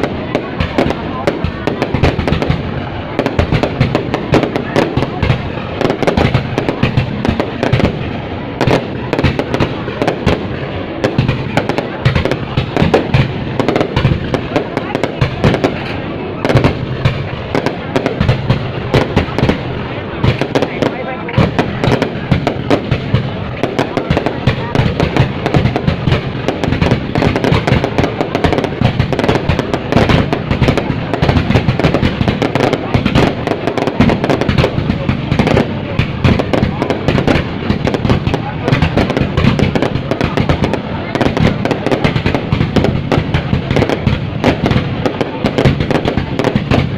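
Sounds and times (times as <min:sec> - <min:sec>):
fireworks bangs and cracks: 0:00.0 - 0:46.9.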